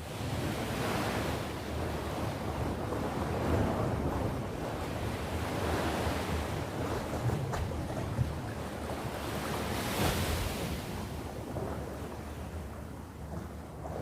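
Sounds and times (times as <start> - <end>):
waves washing onto shore: 0.0 - 14.0.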